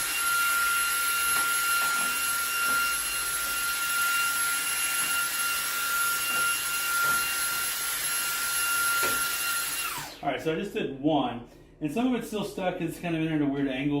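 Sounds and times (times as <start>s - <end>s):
handheld vacuum running: 0.0s - 10.2s.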